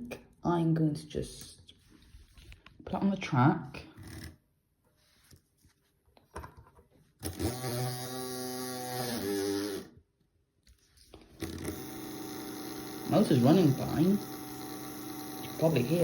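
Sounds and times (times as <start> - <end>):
small electric motor whirring: 7.2 - 10.0, 11.4 - 16.0.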